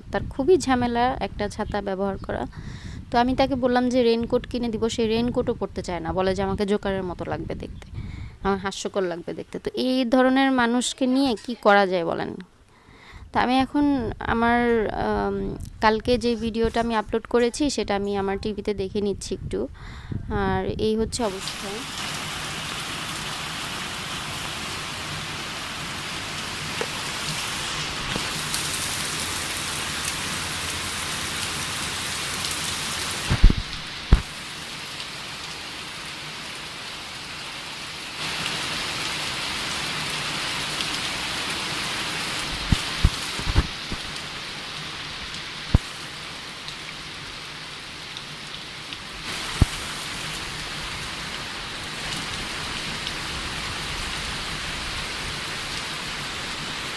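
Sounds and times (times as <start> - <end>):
heavy rain falling: 21.2 - 56.9.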